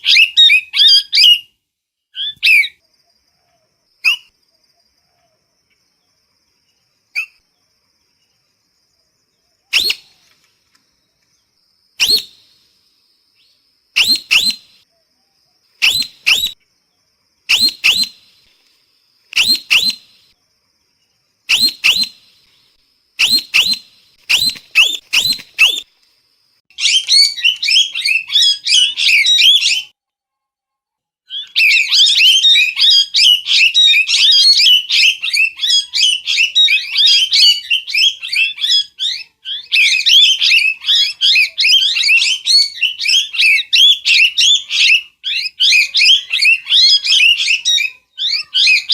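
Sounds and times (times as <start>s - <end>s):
parrot calling: 0.0s - 1.4s, 14.0s - 14.8s, 15.8s - 16.6s, 17.5s - 18.4s, 19.4s - 20.3s, 21.5s - 22.4s, 31.3s - 48.9s.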